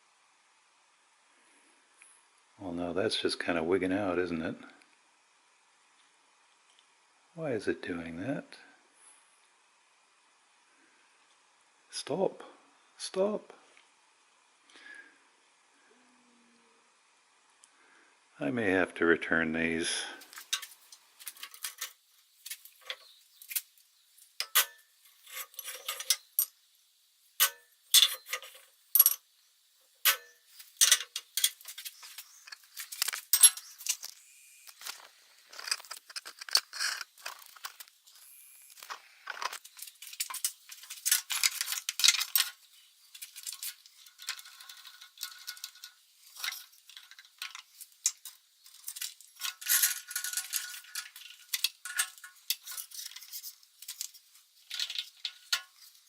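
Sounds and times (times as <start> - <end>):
metal pieces clinking: 20.3 - 23.7, 24.4 - 26.6, 27.4 - 29.2, 30.0 - 34.2, 34.8 - 55.9.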